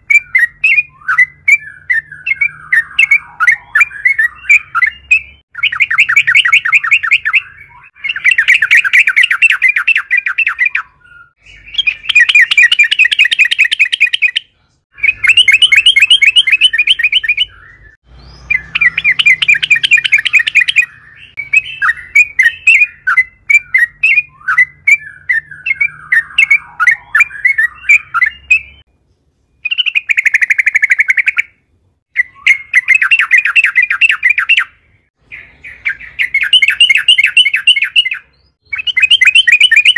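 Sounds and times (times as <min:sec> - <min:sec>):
bird chattering song: 0:00.0 - 0:28.9, 0:29.6 - 0:39.9.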